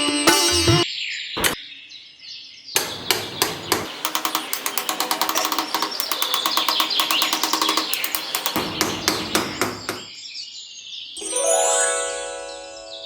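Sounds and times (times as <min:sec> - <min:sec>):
birds chirping: 0:02.7 - 0:10.3
small hammer tapping on wood: 0:02.8 - 0:10.1.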